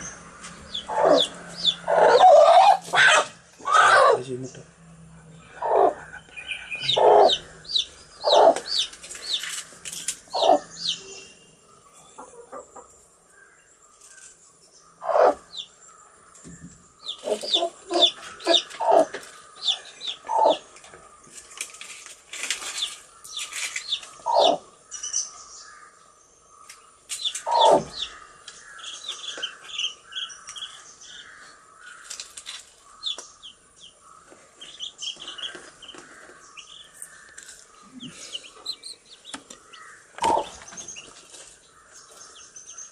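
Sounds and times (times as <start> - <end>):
baby chicks peeping: 0.0 - 13.1, 13.9 - 42.9
louder lower chick calls: 0.7 - 4.2, 6.8 - 9.4, 10.3 - 11.4.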